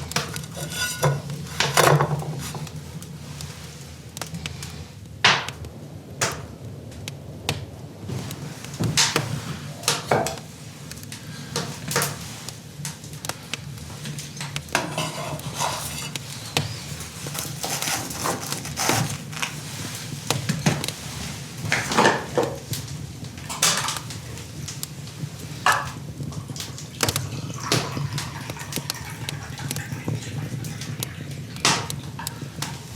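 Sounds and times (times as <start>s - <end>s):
metal cookware clinking and scraping: 0.0s - 2.7s, 14.8s - 16.3s.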